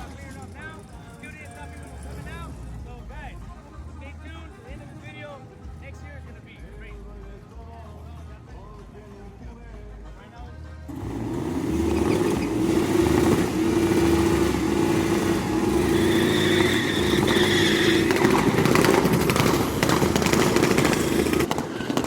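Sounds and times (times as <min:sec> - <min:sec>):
vehicle engine revving: 0:01.5 - 0:03.0, 0:10.9 - 0:22.0.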